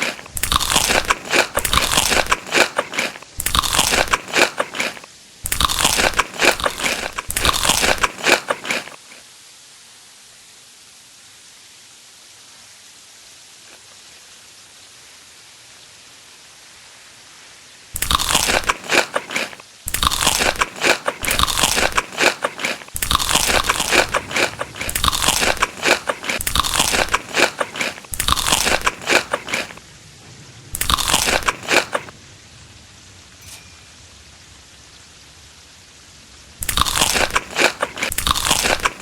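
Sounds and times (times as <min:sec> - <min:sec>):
person chewing crunchy food: 0:00.0 - 0:09.2, 0:18.0 - 0:29.8, 0:30.8 - 0:32.2, 0:36.6 - 0:39.0
steady hiss: 0:00.0 - 0:39.0.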